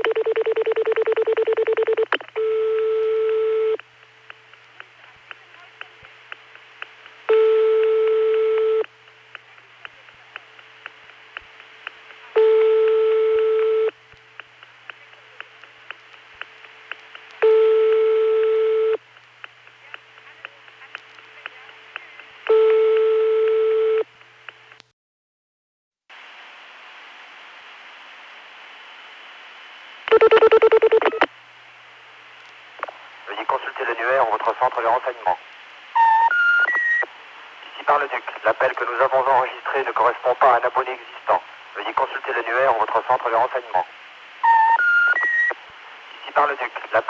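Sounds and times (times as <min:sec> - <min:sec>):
faint clicking on phone line: 0:00.0 - 0:24.9
phone line hiss: 0:12.3 - 0:14.0, 0:35.9 - 0:37.1, 0:44.4 - 0:47.0.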